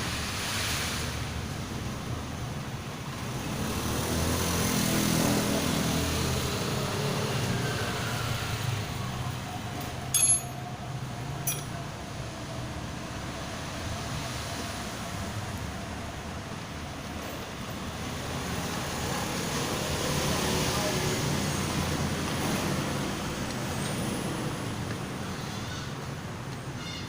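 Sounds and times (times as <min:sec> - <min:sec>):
short metallic clinks: 0:09.8 - 0:10.7, 0:11.4 - 0:11.8.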